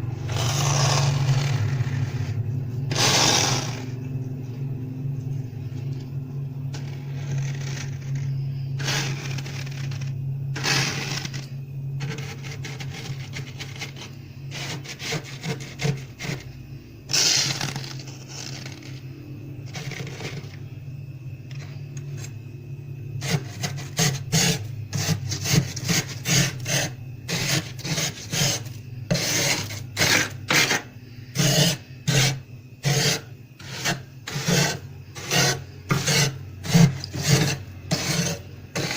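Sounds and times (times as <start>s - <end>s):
low hum: 0.0s - 12.8s
plastic card scraping frost: 6.8s - 16.4s, 17.1s - 19.0s.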